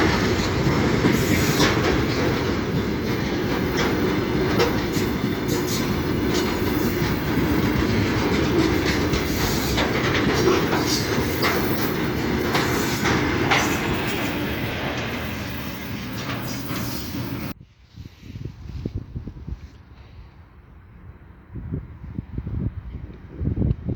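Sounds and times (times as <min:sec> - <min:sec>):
train rumbling on rails: 0:00.0 - 0:17.6
wheels clicking over rail joints: 0:00.0 - 0:17.6.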